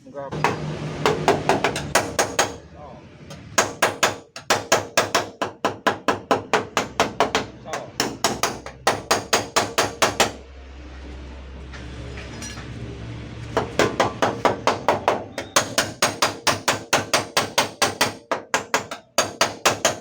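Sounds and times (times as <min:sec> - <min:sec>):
hammer tapping on sheet metal: 0:00.4 - 0:02.6, 0:03.3 - 0:10.4, 0:13.6 - 0:20.0.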